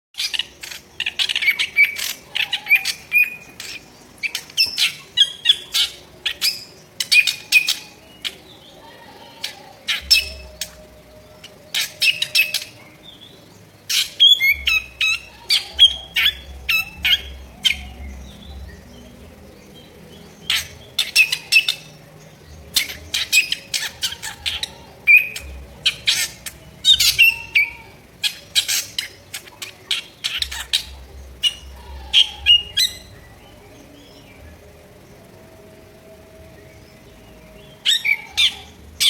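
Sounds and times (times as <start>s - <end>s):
bird singing harsh clicking notes: 0.2s - 34.6s.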